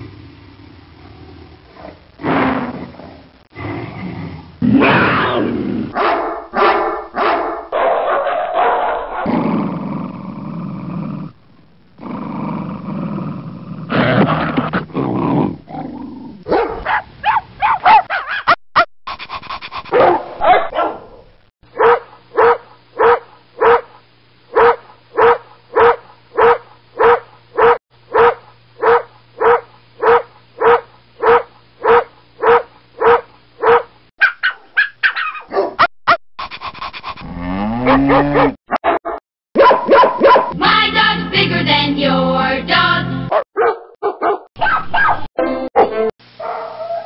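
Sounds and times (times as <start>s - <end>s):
dogs barking: 5.9s - 9.3s, 16.5s - 18.9s, 19.9s - 21.2s, 21.8s - 36.2s, 37.8s - 40.6s, 43.3s - 47.0s.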